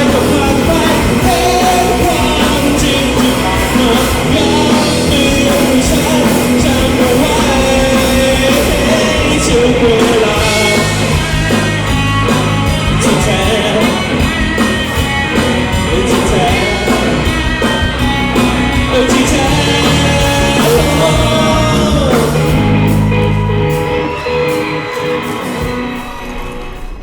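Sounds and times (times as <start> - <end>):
person singing: 0.0 - 11.5, 15.8 - 17.7, 18.8 - 25.7
drums: 0.0 - 27.0
live rock band: 0.0 - 27.0.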